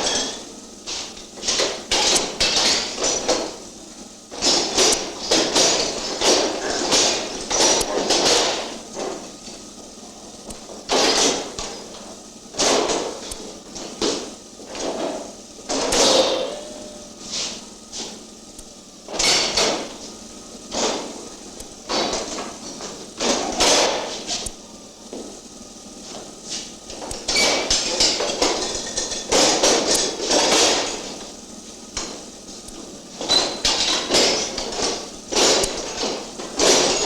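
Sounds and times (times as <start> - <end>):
levers clattering: 0.0 - 3.6, 4.3 - 9.7, 10.4 - 24.6, 26.5 - 37.0
metal levers clanking: 15.7 - 17.1.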